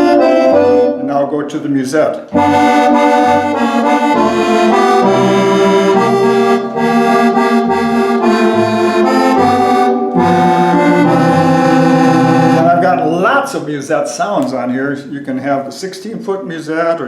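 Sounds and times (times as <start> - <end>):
accordion playing a tune: 0.0 - 1.2, 2.2 - 13.4.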